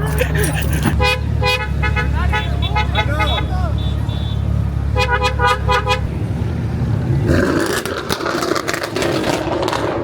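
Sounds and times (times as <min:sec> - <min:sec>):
car engine rumble: 0:00.0 - 0:10.0
car horn beeping: 0:00.8 - 0:06.1
rough rush with crackling: 0:07.2 - 0:10.0.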